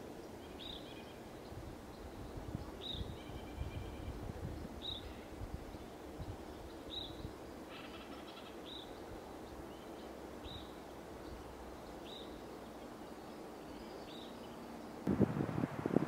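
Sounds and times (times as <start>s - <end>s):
rustling and wind on microphone: 0.0s - 7.7s, 15.0s - 16.0s
faint outdoor background noise: 0.0s - 16.0s.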